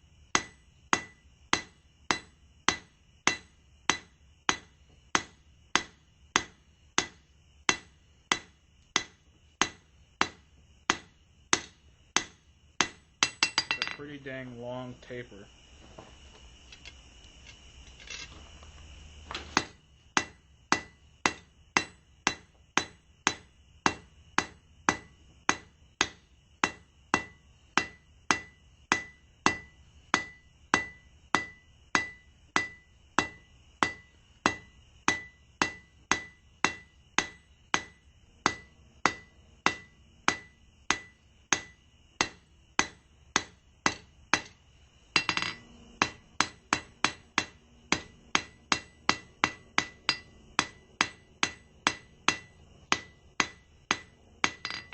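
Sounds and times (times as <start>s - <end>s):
hammer striking steel on anvil: 0.3s - 14.1s, 19.6s - 44.6s, 45.2s - 54.9s.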